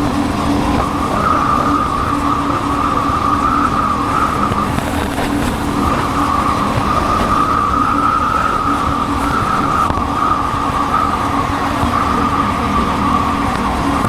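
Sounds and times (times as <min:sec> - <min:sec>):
wind rush on microphone: 0:00.0 - 0:14.0.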